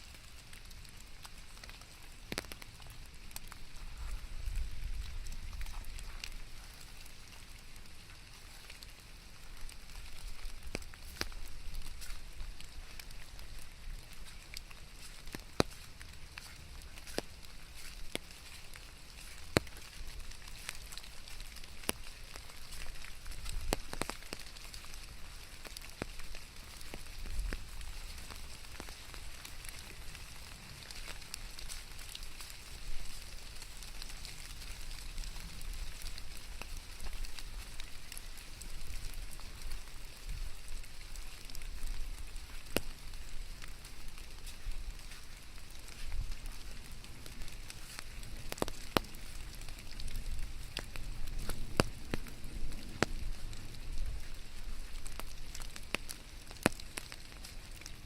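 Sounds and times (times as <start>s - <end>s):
rain falling: 0.0s - 58.0s.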